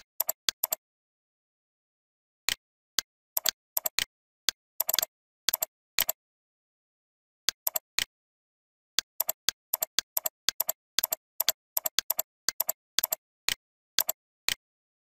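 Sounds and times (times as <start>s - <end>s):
computer mouse clicks: 0.2s - 0.8s, 3.4s - 6.2s, 7.5s - 8.1s, 9.1s - 14.6s.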